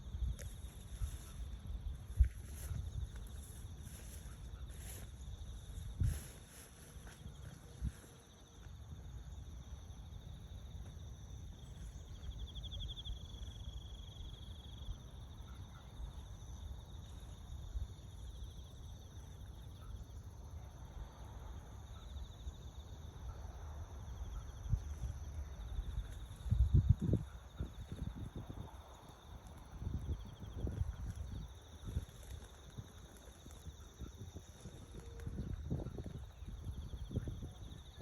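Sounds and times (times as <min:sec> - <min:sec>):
insects trilling: 0:00.0 - 0:38.0.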